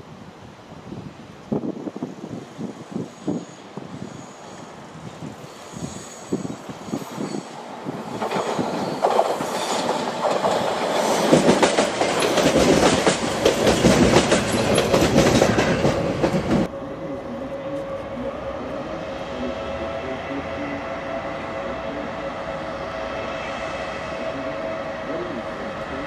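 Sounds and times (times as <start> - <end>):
diesel railcar passing: 1.9 - 26.0
train wheels clattering over rail joints: 8.1 - 16.7.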